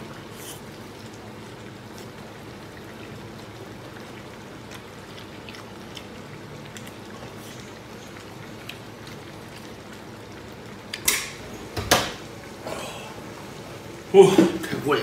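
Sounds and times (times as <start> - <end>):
wet chewing and mouth smacks: 0.4 - 11.1.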